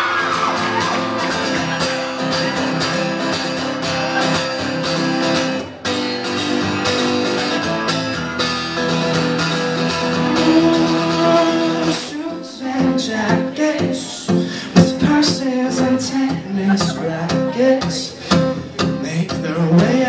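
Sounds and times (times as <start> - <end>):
guitar strumming chords: 0.0 - 20.0.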